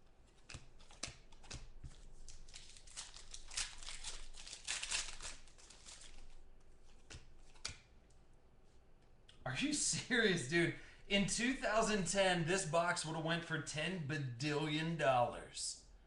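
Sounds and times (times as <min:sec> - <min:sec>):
wrapper crinkling: 0:00.8 - 0:07.8.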